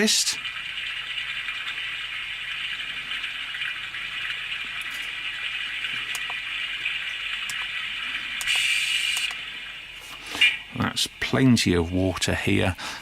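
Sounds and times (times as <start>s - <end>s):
water rushing hiss from speaker: 4.6s - 13.0s.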